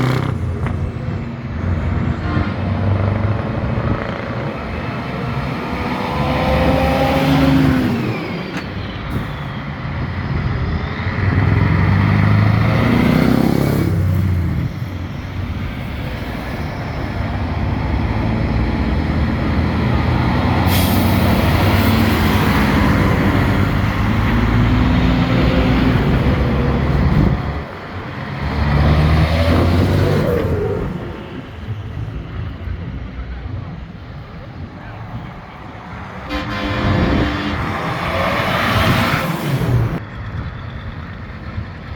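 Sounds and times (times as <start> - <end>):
trucks driving past: 0.0 - 41.9.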